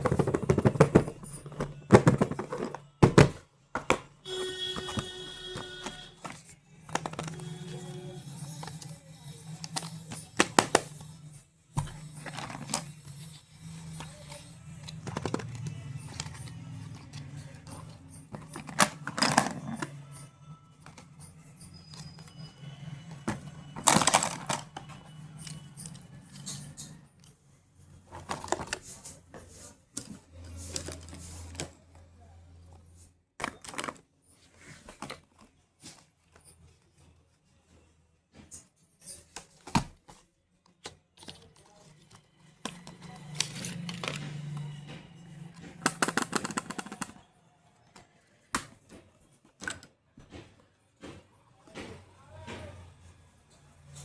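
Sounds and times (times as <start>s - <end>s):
packaging clicks and rustles: 0.0s - 32.0s, 33.4s - 37.4s, 38.5s - 52.8s.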